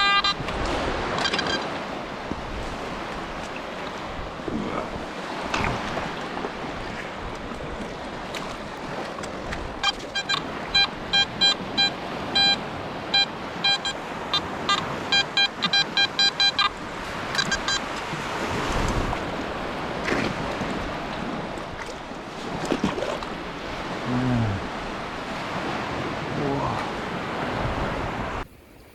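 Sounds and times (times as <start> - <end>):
metal detector beeps: 0.0 - 0.5, 1.1 - 1.7, 9.8 - 17.9
rushing wind or surf: 0.0 - 28.9.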